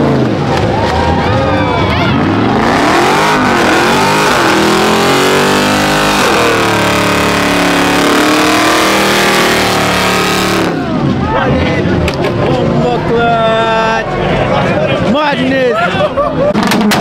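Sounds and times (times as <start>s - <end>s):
car engine revving: 2.0s - 12.0s.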